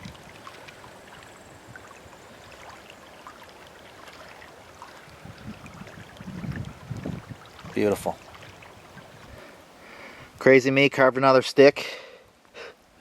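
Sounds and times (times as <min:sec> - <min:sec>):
flowing water rushing: 0:00.0 - 0:10.4.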